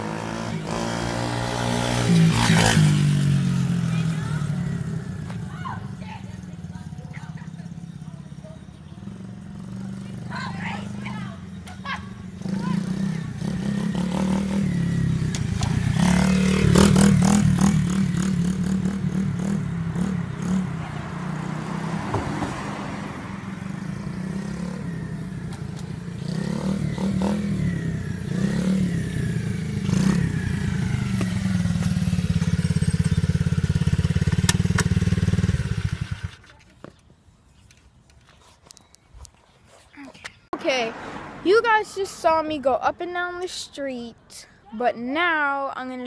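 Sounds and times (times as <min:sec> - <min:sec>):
dirt bike engine revving: 0:00.0 - 0:05.5, 0:09.0 - 0:36.4.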